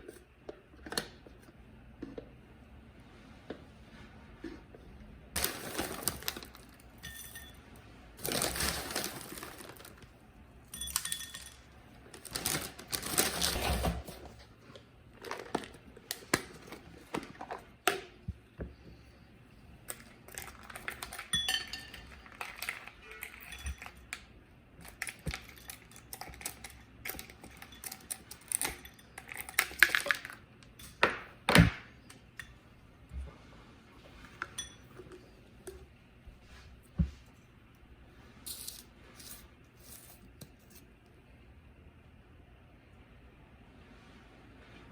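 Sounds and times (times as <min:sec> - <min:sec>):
household objects clinking: 0:20.3 - 0:24.1.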